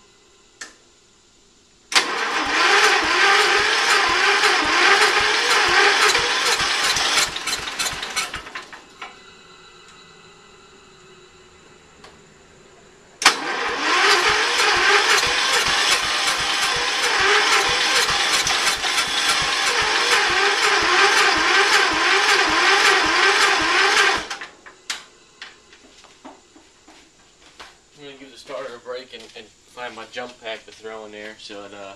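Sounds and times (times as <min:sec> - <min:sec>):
engine cranked by electric starter: 0:01.9 - 0:12.2, 0:13.2 - 0:25.6.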